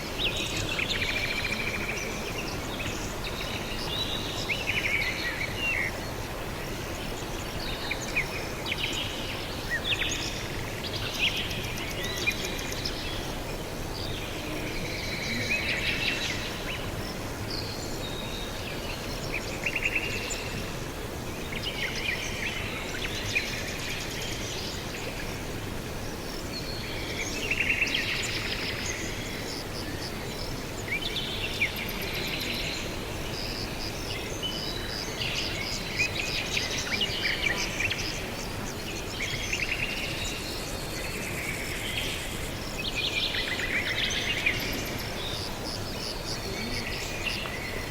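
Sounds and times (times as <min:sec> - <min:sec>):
outdoor ambience hiss: 0:00.0 - 0:47.9.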